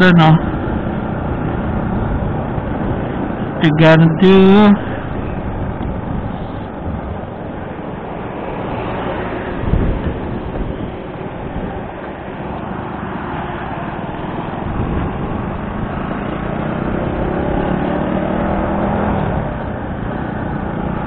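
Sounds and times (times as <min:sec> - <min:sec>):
wind on microphone: 0:04.8 - 0:12.2, 0:14.1 - 0:21.0.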